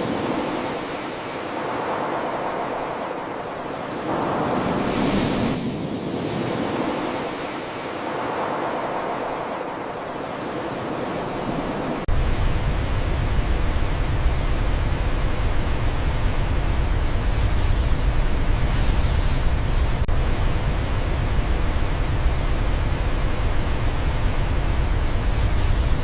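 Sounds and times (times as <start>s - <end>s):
deep rumbling noise: 12.1s - 26.0s.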